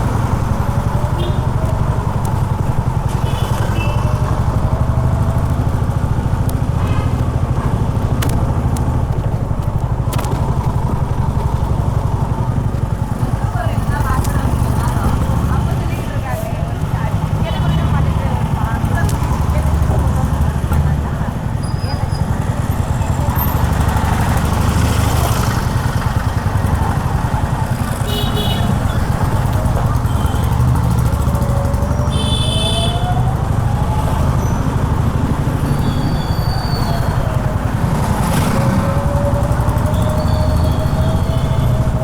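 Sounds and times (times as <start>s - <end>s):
motorcycle engine thumping: 0.0s - 21.5s
sharp clicks: 8.0s - 10.8s.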